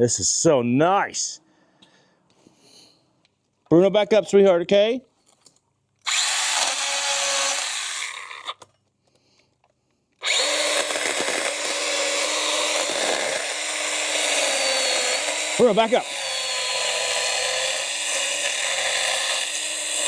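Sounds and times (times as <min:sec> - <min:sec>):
mini chainsaw cutting branches: 0:06.0 - 0:08.6, 0:10.2 - 0:20.0.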